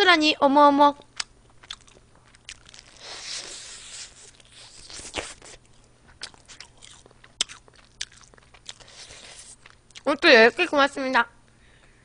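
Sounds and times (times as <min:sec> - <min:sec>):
chewing crispy chicken: 0:01.2 - 0:10.2.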